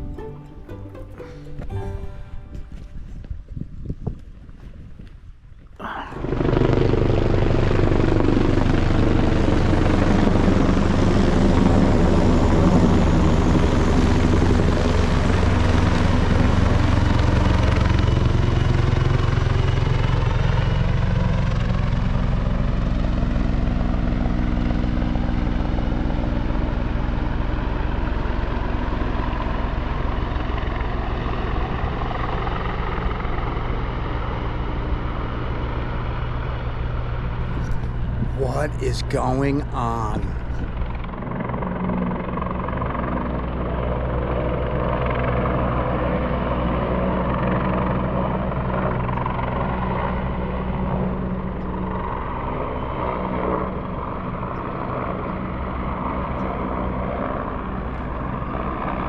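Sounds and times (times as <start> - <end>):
helicopter flying low overhead: 2.4 - 59.0.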